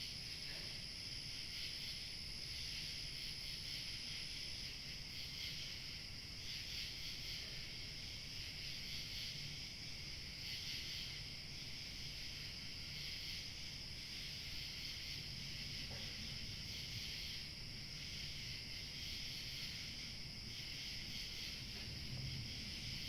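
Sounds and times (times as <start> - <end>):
crickets chirping: 0.0 - 23.0
light wind: 4.6 - 23.0.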